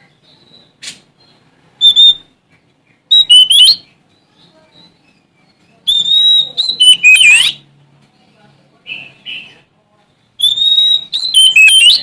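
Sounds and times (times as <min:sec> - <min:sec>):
bird singing whistled phrases: 0:00.2 - 0:02.3, 0:03.1 - 0:07.6, 0:10.4 - 0:12.0.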